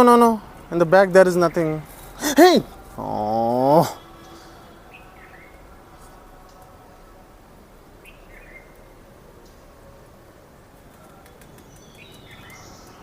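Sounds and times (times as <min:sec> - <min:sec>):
faint outdoor background noise: 0:00.0 - 0:13.0
bird chirps: 0:11.2 - 0:13.0.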